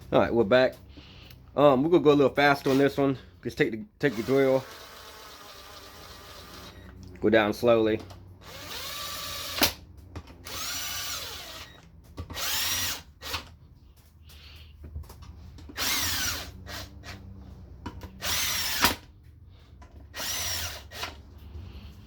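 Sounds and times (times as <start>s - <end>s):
power drill motor whine: 4.1s - 7.0s, 8.4s - 9.8s, 10.4s - 13.5s, 15.7s - 17.2s, 18.2s - 19.1s, 20.1s - 21.2s.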